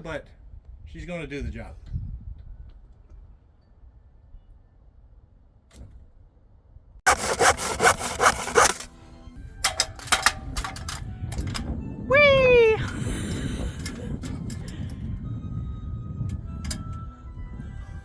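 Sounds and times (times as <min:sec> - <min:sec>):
saw cutting wood: 0:07.1 - 0:08.9.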